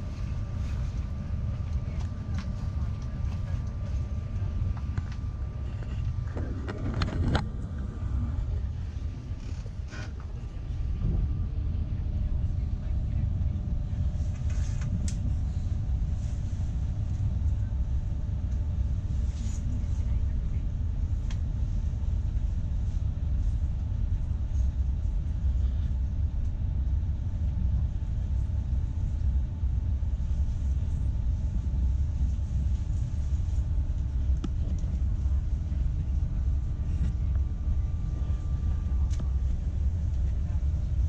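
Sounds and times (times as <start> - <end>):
train rumble inside carriage: 0.0 - 41.0.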